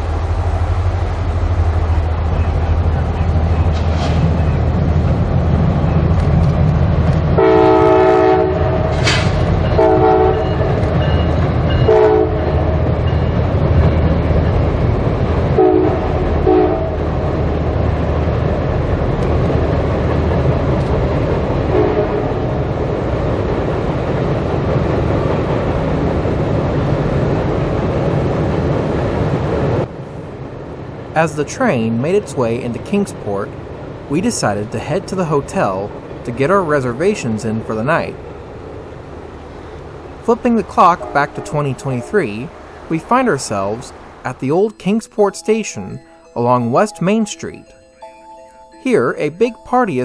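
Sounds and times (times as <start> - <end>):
locomotive engine drone: 0.0 - 50.0
train air horn blasts: 7.4 - 10.7, 11.9 - 12.5, 15.6 - 17.0, 21.7 - 22.4.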